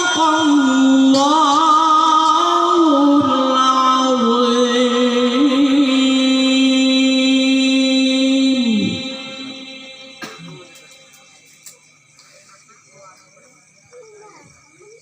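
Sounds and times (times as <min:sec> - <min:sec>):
man reciting melodically: 0:00.0 - 0:11.4.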